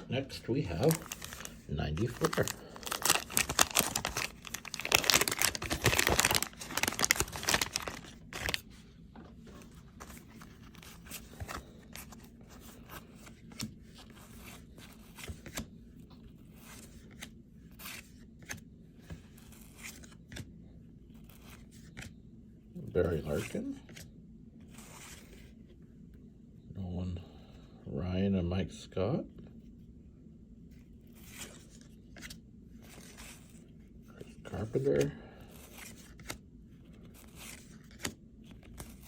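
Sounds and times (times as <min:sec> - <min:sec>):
wax paper pack tearing: 0:00.8 - 0:08.6.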